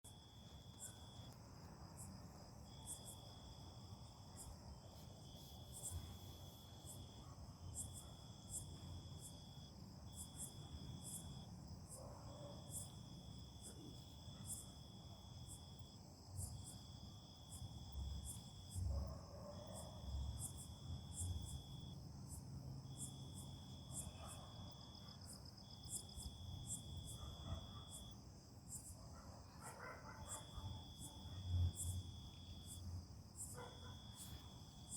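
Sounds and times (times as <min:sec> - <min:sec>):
insect chirping: 0:00.1 - 0:34.9.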